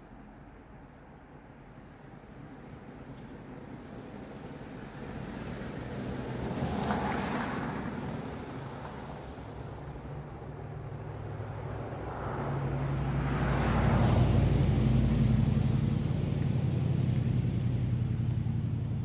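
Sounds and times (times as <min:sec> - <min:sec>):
vehicle passing rush: 0:03.9 - 0:19.0
vehicle engine humming: 0:08.5 - 0:19.0.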